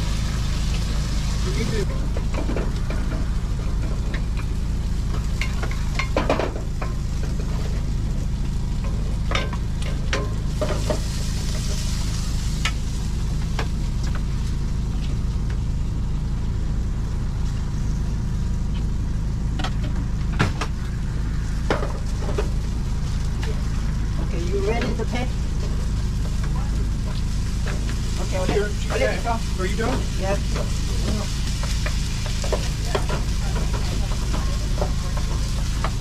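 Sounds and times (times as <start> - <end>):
food sizzling on a griddle: 0.0 - 36.0
low machine hum: 0.0 - 36.0.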